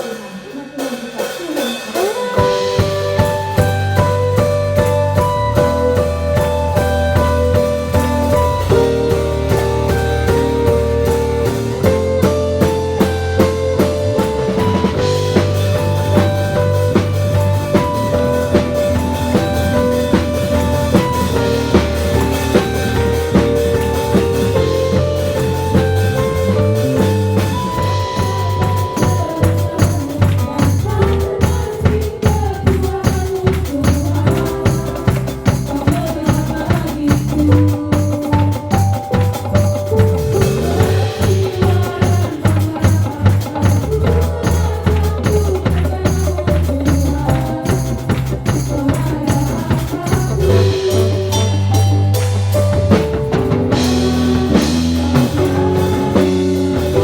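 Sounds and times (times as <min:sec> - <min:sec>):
band playing worship song: 0:00.0 - 0:57.0
drum kit beat: 0:00.0 - 0:57.0
keyboard chords: 0:02.1 - 0:57.0.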